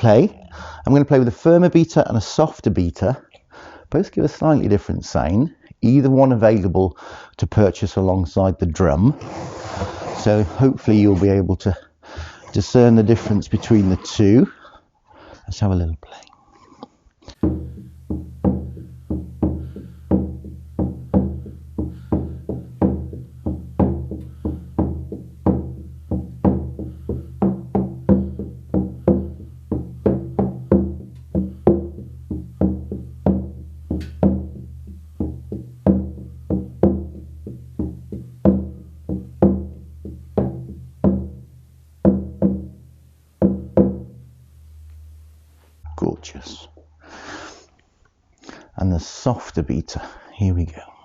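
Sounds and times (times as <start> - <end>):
frame drum beaten with a beater: 17.4 - 45.3.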